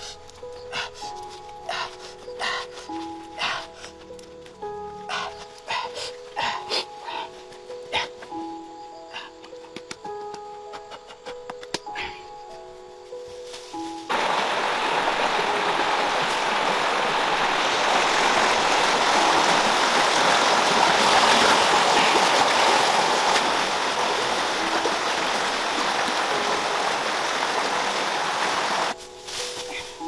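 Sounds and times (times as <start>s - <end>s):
stream water rushing: 14.1s - 29.0s.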